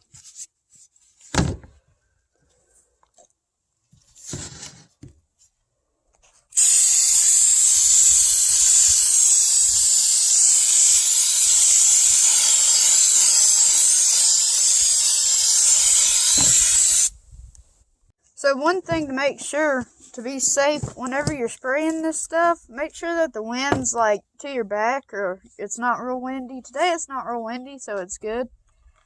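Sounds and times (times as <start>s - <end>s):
aerosol can spraying: 6.6s - 17.2s.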